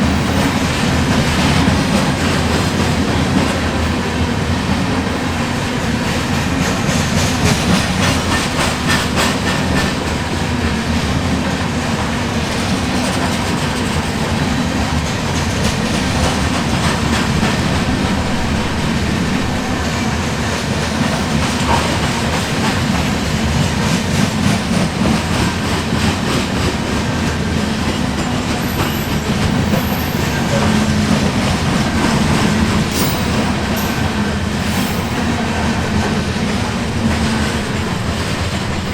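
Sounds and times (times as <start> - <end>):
freight train rumbling: 0.0 - 38.9
wheels clicking over rail joints: 5.9 - 38.9
high wheel squeaks: 28.3 - 38.9.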